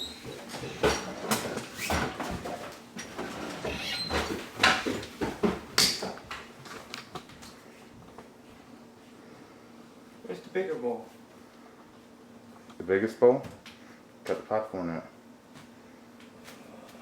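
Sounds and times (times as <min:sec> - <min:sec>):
kitchen items knocking and clicking: 0:00.0 - 0:06.5.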